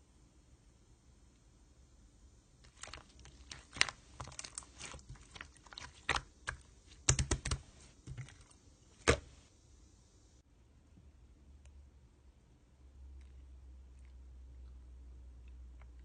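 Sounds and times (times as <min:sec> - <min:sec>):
slime clicking and popping: 0:02.7 - 0:07.6.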